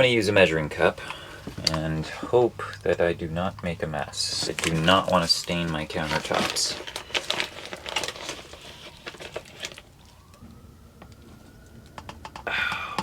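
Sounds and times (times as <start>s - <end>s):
plastic bag handling: 1.3s - 10.4s.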